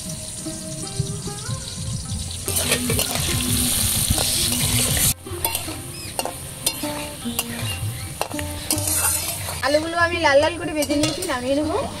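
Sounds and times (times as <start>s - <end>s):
potatoes sizzling in hot oil: 0.0s - 12.0s
spatula scraping a pan: 2.5s - 3.4s, 4.1s - 9.6s.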